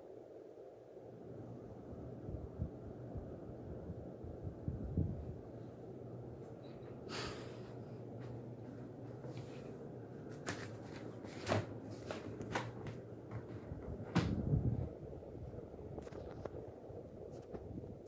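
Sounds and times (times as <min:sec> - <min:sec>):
ceiling fan humming: 0:00.0 - 0:18.0.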